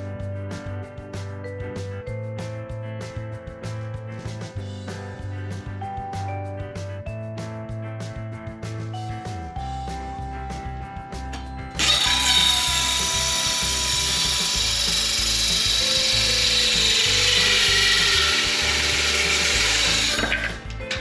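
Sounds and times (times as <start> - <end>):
circular saw cutting wood: 11.8 - 20.8.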